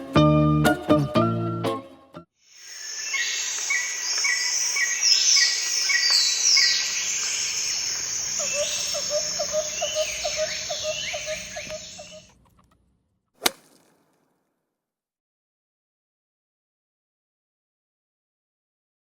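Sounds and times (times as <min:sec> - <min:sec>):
bird chirps: 0:02.5 - 0:12.3
high falling bird whistles: 0:02.6 - 0:12.3.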